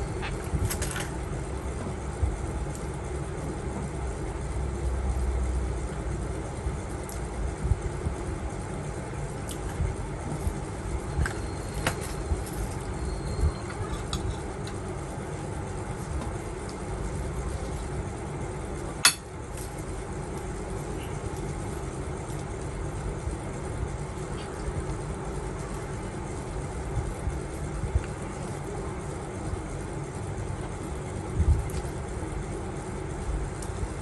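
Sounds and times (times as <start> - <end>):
steady low rumble: 0.0 - 34.0
chopsticks and dishes clinking: 19.0 - 19.3.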